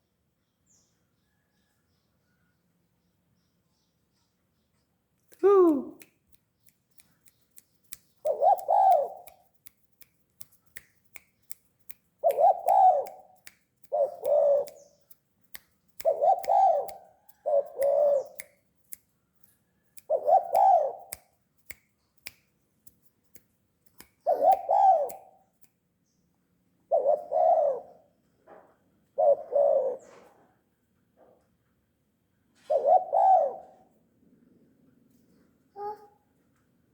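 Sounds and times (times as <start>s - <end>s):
dove cooing: 8.3s - 9.2s, 12.2s - 13.2s, 13.9s - 14.8s, 16.0s - 18.4s, 20.1s - 21.1s, 24.3s - 25.3s, 26.9s - 28.1s, 29.2s - 30.4s, 32.6s - 33.9s.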